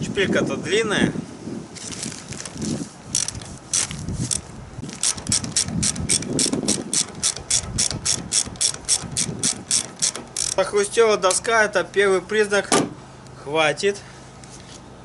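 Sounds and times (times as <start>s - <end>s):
ratchet wrench clicking: 3.1s - 10.7s.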